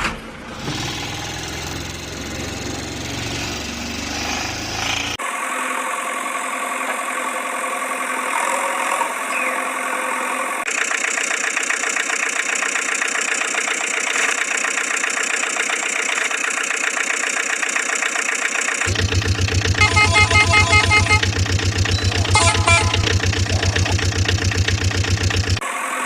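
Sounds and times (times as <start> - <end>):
engine with fast even pulse: 0.5 - 5.2, 10.7 - 25.6
vehicle engine idling: 0.6 - 5.1, 10.7 - 25.6.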